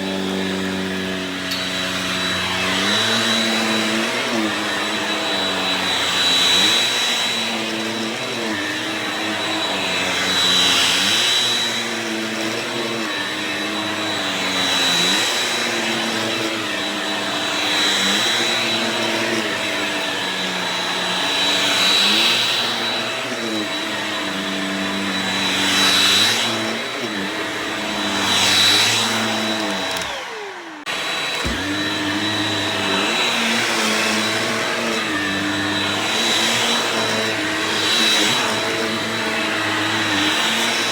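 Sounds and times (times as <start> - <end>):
stick vacuum motor whine: 0.0 - 40.9.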